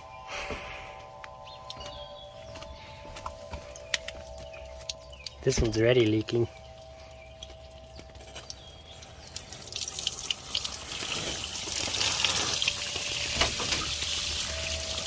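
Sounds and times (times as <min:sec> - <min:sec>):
water pouring and splashing: 0:03.7 - 0:15.0.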